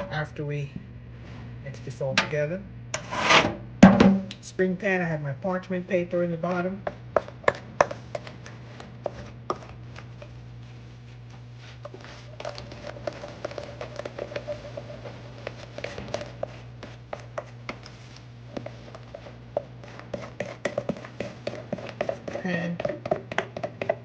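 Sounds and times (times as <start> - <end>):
steady low hum: 0.0 - 24.0
utensil tapping and scraping bowl: 6.5 - 10.3, 11.1 - 24.0.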